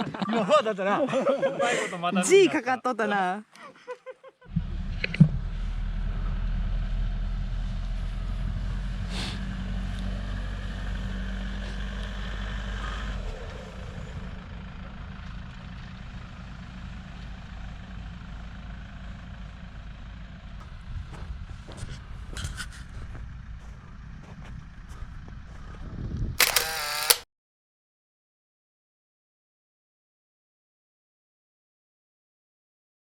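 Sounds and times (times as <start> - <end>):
vehicle engine and road rumble: 4.5 - 27.2.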